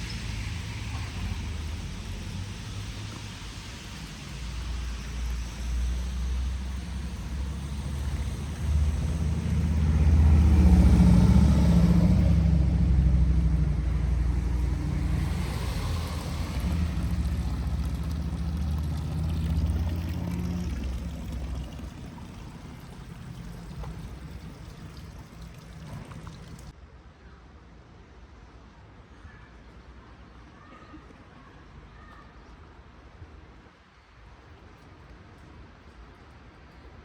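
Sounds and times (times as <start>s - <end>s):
vehicle engine passing: 0.0s - 26.7s.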